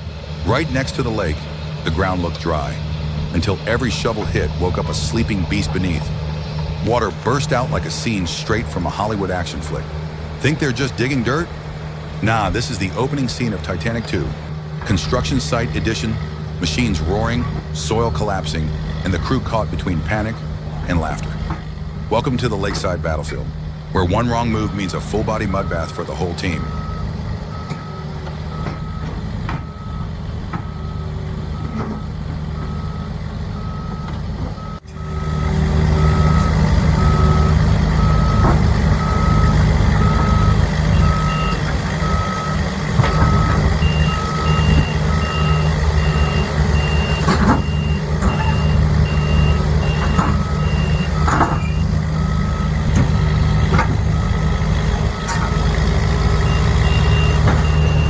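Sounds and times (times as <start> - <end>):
diesel engines rumbling: 0.0 - 58.0
reversing alarm beeping: 24.0 - 58.0.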